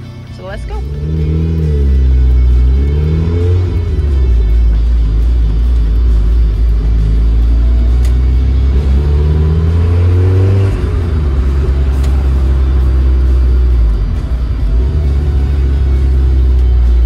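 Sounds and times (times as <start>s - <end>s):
car engine revving inside cabin: 0.0s - 17.0s.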